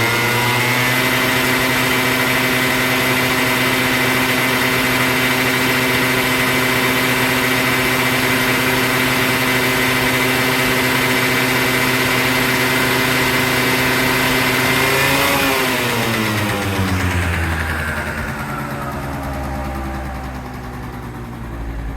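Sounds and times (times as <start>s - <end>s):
scooter engine running: 0.0s - 21.9s.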